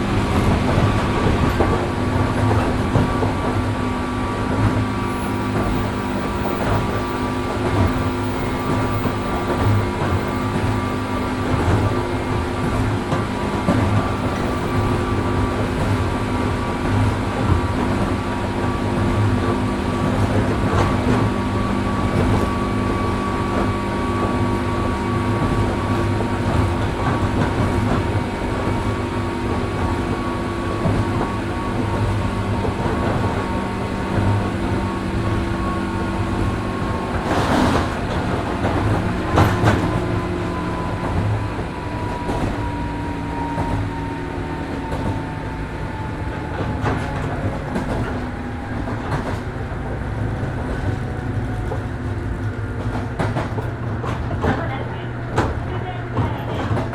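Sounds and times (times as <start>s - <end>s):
traction motor whine: 0.0s - 56.9s
train wheels rumbling on rail: 0.0s - 56.9s.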